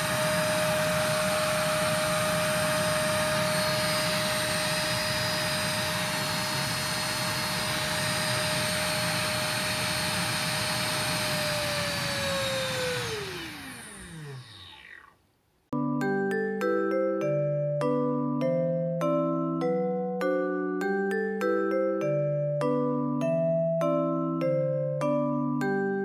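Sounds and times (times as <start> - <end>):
motor winding down: 0.0 - 15.2
stick vacuum running: 0.0 - 15.2.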